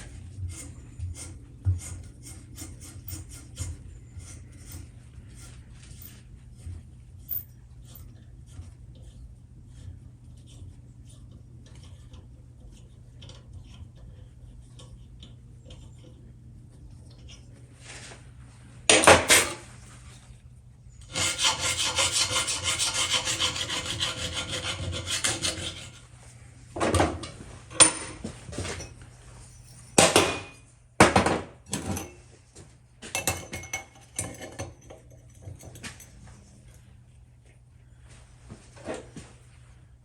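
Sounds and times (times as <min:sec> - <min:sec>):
file rasping on metal: 0:00.4 - 0:05.6, 0:21.0 - 0:26.0.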